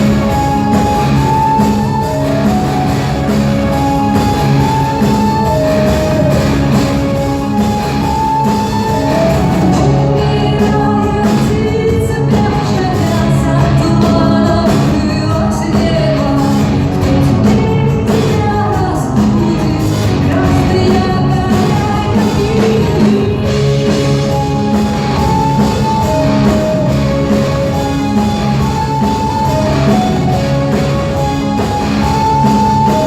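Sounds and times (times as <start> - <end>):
rock band playing live: 0.0 - 33.0
woman singing: 9.7 - 24.2.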